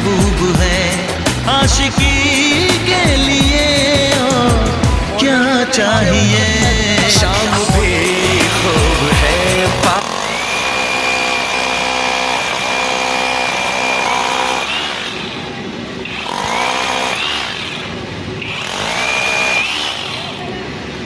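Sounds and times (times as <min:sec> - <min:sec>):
power tool motor whining: 0:05.7 - 0:21.0.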